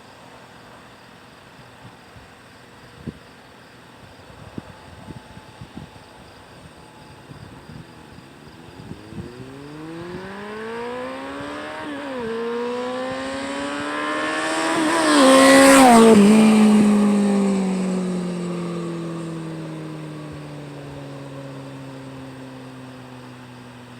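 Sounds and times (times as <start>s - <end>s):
motorcycle accelerating past: 7.2s - 23.9s.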